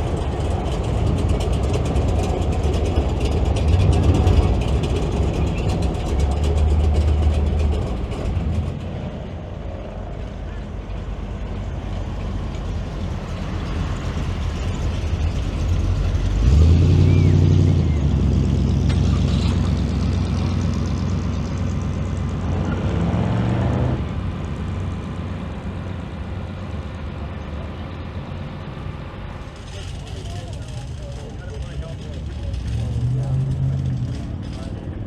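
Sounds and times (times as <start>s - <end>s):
car engine passing: 0.0s - 35.0s.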